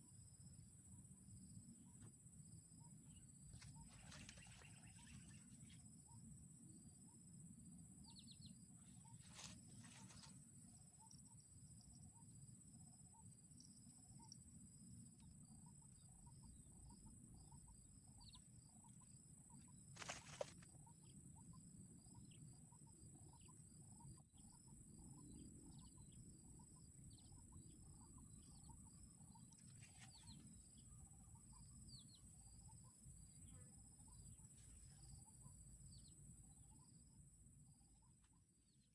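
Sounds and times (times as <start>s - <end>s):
faint bird calls: 2.8s - 6.3s.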